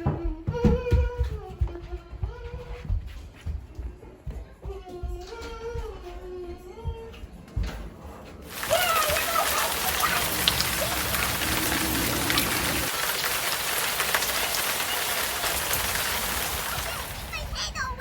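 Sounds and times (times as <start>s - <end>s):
heavy rain: 8.5s - 17.8s.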